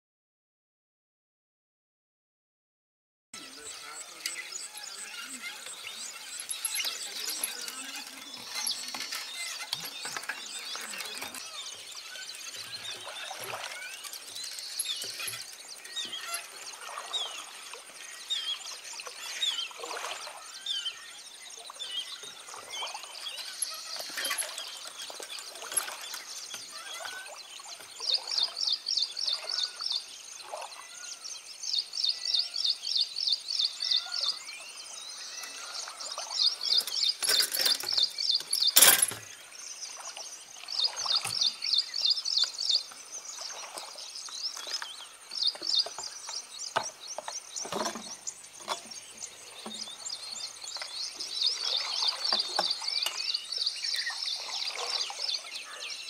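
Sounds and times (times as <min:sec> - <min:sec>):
birds chirping: 0:03.4 - 0:56.0.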